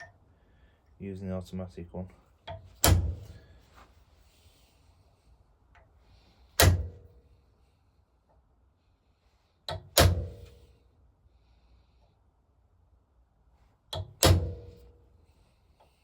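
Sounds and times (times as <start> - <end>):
hammer striking punch into metal: 2.8 - 3.4, 6.6 - 7.1, 14.0 - 14.8.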